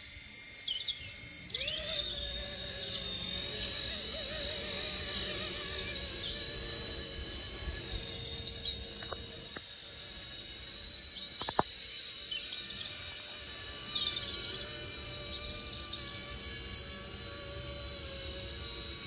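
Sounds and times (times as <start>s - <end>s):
rc helicopter rotor whine: 0.0s - 19.0s
birds chirping: 5.2s - 9.6s.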